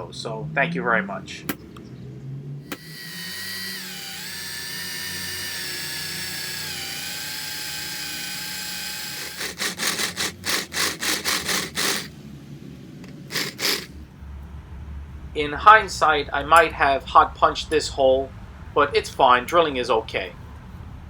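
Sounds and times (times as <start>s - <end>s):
electric drill whining: 2.7s - 12.1s, 13.0s - 14.0s.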